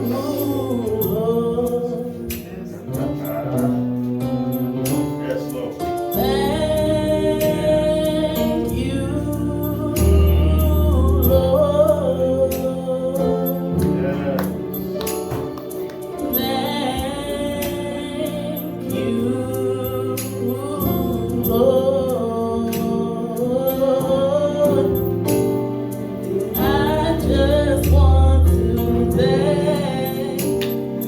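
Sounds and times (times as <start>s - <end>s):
gospel singing: 0.0s - 31.0s
held instrumental chords: 0.0s - 31.0s
percussion hits: 14.0s - 16.5s.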